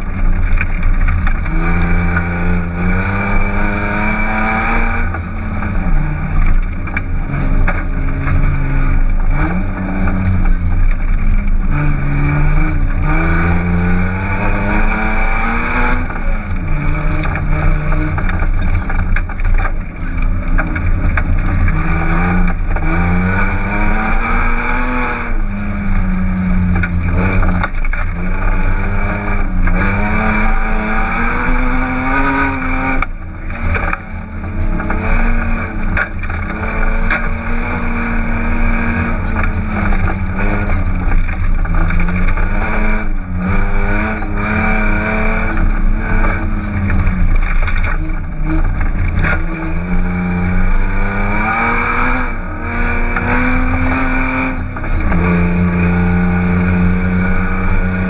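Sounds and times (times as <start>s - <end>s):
car engine at full throttle: 0.0s - 58.0s.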